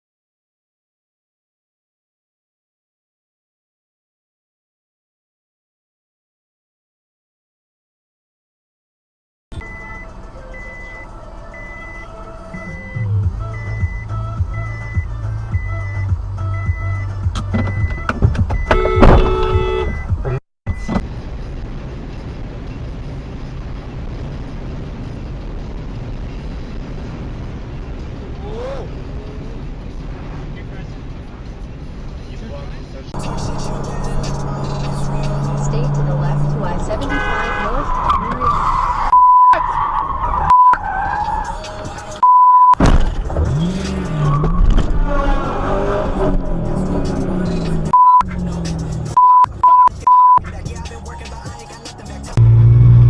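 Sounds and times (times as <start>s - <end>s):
censor bleep: 9.6s - 18.0s, 18.6s - 21.0s, 39.1s - 39.6s, 40.5s - 40.8s, 42.2s - 42.8s, 47.9s - 48.3s, 49.2s - 50.4s
car noise with rising pitch: 9.6s - 28.1s, 29.1s - 53.0s
moving vehicle road noise: 9.6s - 53.0s.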